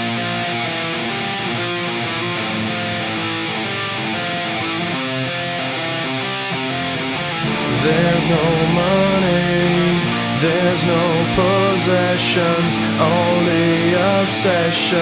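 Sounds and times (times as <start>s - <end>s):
guitar-led rock instrumental: 0.0s - 15.0s
person singing: 7.4s - 15.0s.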